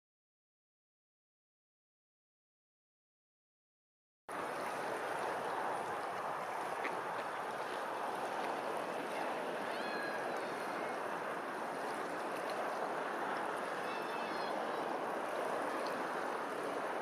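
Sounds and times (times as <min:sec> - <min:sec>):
running water rushing: 0:04.3 - 0:17.0.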